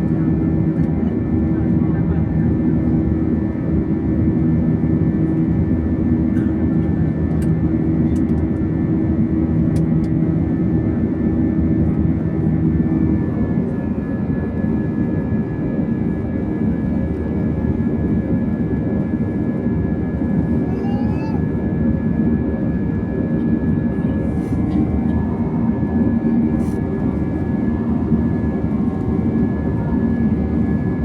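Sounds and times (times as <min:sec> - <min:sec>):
jet engines droning: 0:00.1 - 0:31.0.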